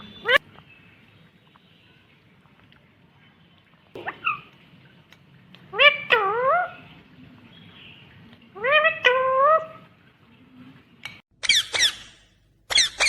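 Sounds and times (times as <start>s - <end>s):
parrot vocalizing: 0.0s - 0.4s, 4.0s - 4.5s, 5.7s - 6.9s, 8.6s - 9.9s, 11.4s - 13.0s.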